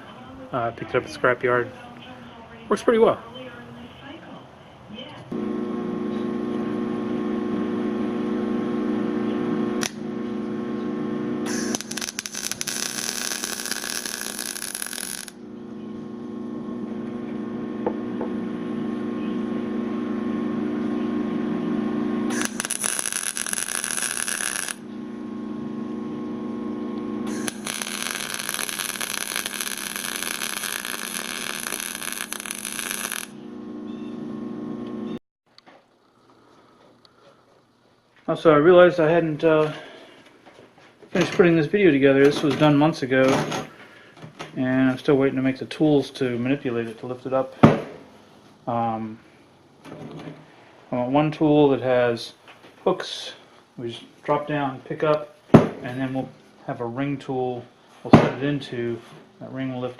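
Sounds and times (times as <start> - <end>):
electric welder humming: 5.4 - 35.2
arc welding crackling: 9.8 - 10.2, 11.2 - 15.6, 22.2 - 25.4, 27.2 - 33.4.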